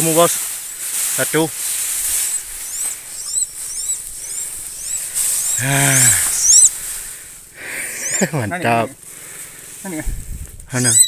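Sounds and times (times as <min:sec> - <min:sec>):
nestling bird chirping: 0:00.0 - 0:10.0, 0:10.7 - 0:11.0
voiced exclamation: 0:04.2 - 0:06.7.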